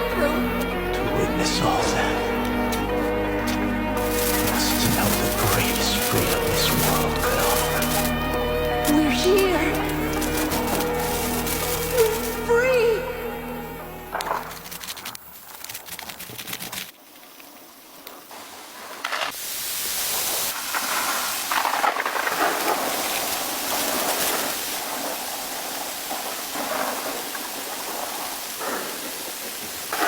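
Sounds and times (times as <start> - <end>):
heavy rain hiss: 0.0 - 14.9, 17.5 - 30.0
crackling clicks: 2.3 - 12.5, 14.1 - 18.2.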